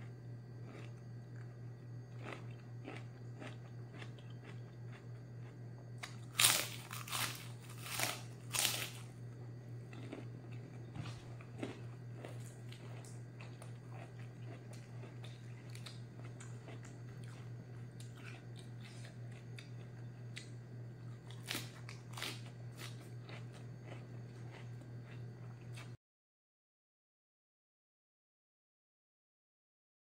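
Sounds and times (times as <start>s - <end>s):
crunching lettuce: 0.1s - 26.0s.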